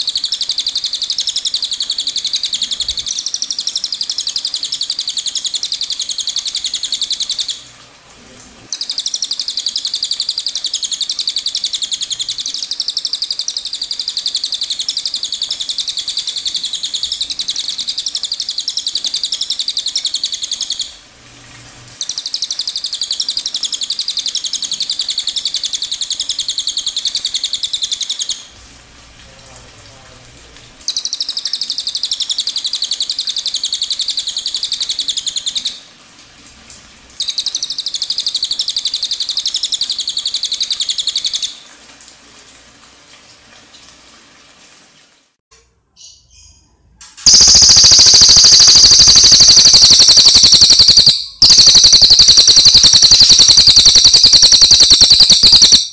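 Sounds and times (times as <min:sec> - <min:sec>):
songbird high-pitched trills: 0:47.3 - 0:55.9.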